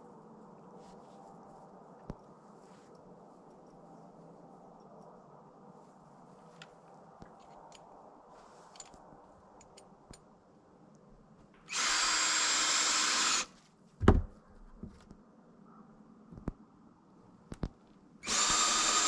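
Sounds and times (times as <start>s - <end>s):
power drill running: 11.7s - 13.5s, 18.2s - 19.0s
heavy thump: 14.0s - 15.0s.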